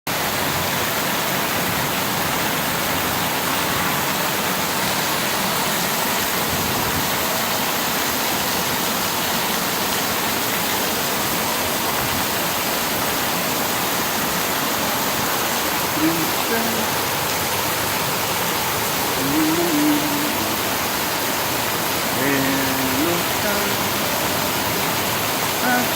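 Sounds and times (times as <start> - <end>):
rain falling: 0.1 - 25.9.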